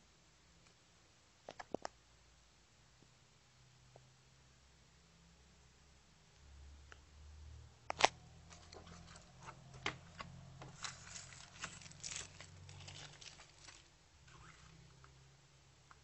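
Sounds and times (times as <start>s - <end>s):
small crackles: 7.9s - 15.2s
plastic packaging tearing and crinkling: 8.0s - 14.8s.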